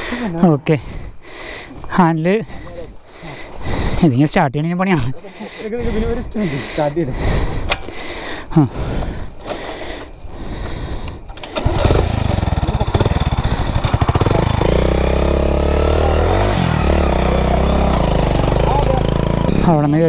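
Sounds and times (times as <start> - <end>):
motorcycle engine starting and idling: 11.2 - 20.0.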